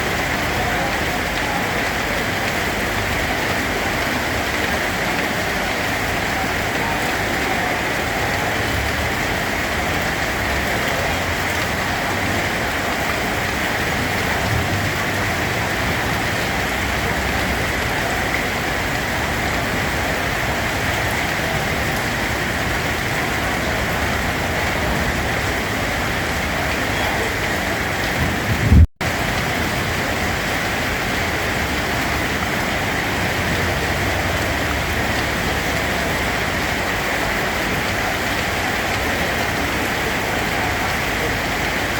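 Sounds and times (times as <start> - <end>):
rain falling: 0.0 - 41.9
brief low thump: 28.2 - 28.9.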